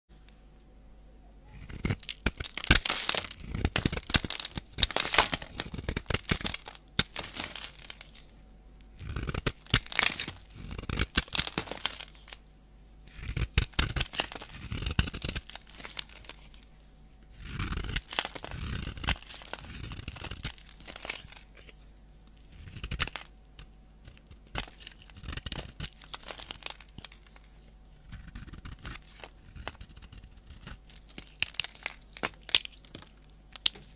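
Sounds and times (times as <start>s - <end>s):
blade scraping soap: 1.6s - 8.1s, 13.1s - 16.6s, 17.4s - 21.8s, 22.5s - 23.3s, 24.0s - 27.4s, 28.0s - 32.9s.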